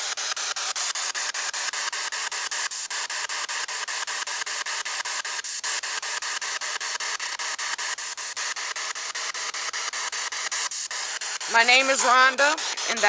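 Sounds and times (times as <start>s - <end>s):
chopped radio static: 9.9s - 13.0s.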